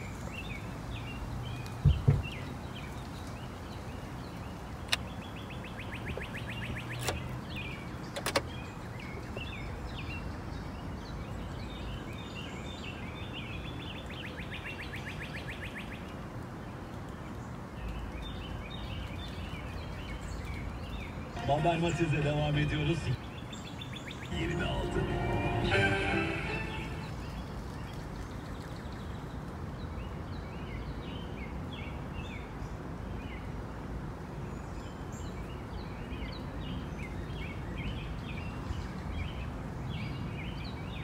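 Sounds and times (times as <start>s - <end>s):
small birds chirping: 0.0s - 33.6s, 34.4s - 41.0s
dull thumps: 1.8s - 2.3s.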